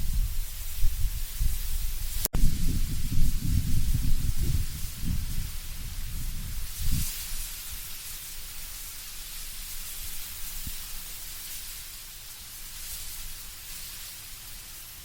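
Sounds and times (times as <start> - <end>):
low gust rumble: 0.0 - 7.0
wind rustling leaves: 0.0 - 15.0.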